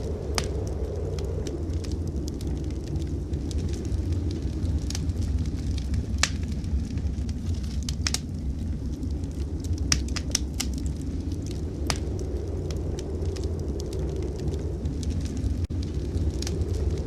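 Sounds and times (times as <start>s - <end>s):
low fire rumble: 0.0s - 17.0s
sharp fire pops: 0.0s - 17.0s
wood fire crackling: 0.0s - 17.0s.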